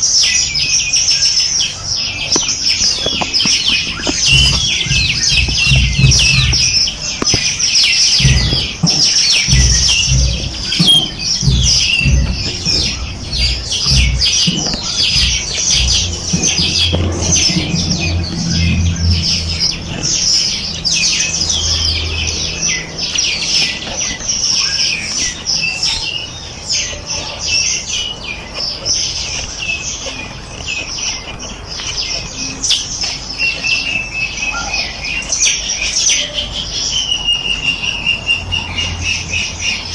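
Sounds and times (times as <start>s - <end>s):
small birds chirping: 0.0s - 39.9s
low rumbling thumps: 2.1s - 26.7s.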